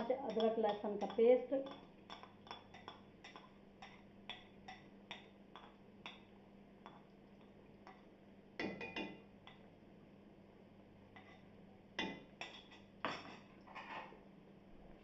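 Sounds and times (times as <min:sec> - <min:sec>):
spoon clinking against pot: 0:00.0 - 0:06.2, 0:08.6 - 0:09.6.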